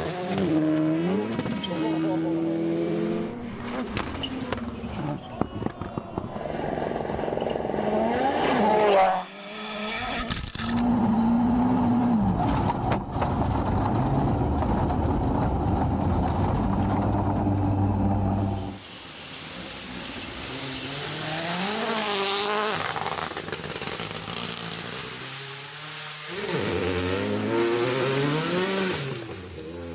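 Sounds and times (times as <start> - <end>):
rally car engines revving: 0.0 - 18.8, 19.8 - 29.9
tyres hissing on gravel: 10.8 - 23.2.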